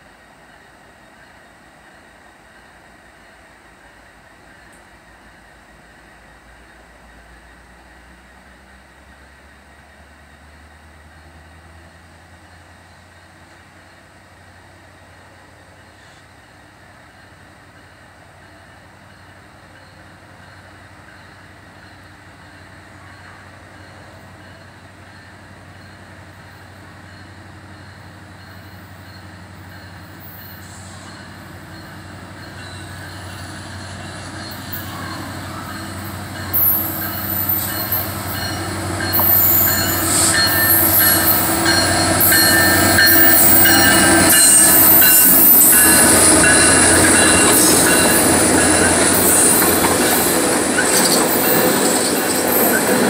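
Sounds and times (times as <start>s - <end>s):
rail noise: 0.0s - 53.0s
diesel locomotive rumble: 0.2s - 53.0s
wheel squeal: 28.5s - 53.0s.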